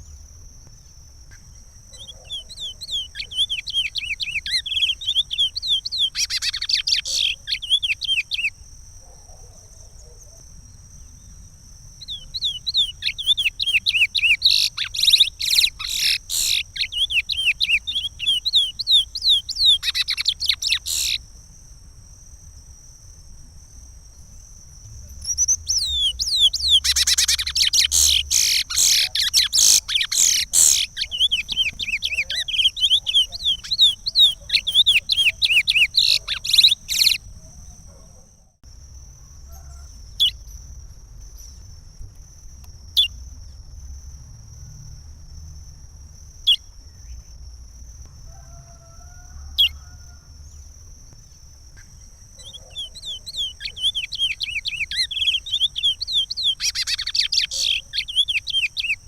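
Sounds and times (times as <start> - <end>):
finch singing whistled notes: 1.9 - 8.6, 12.0 - 21.2, 25.2 - 37.2, 52.4 - 59.0.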